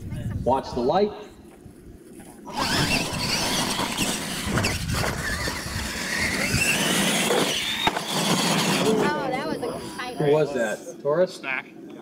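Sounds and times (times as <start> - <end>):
tyres churning dirt: 2.4 - 10.2
toy truck motor whine: 2.5 - 10.2.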